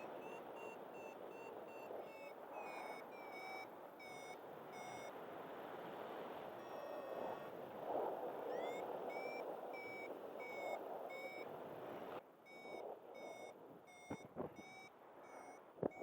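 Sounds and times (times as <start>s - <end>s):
variometer beeping: 0.0s - 5.1s, 6.6s - 7.5s, 8.5s - 11.5s, 12.5s - 16.0s.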